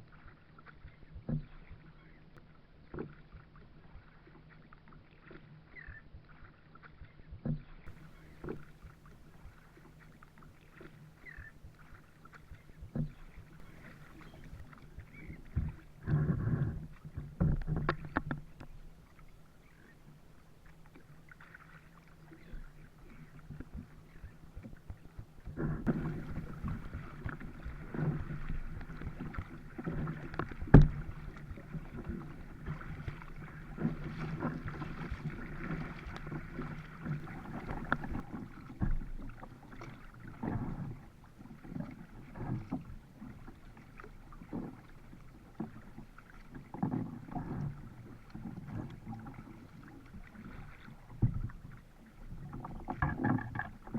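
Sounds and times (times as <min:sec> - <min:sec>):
kayak paddle strokes: 0:00.0 - 0:53.9
water splashing against hull: 0:00.0 - 0:53.9
sharp knocks on kayak: 0:25.5 - 0:32.2.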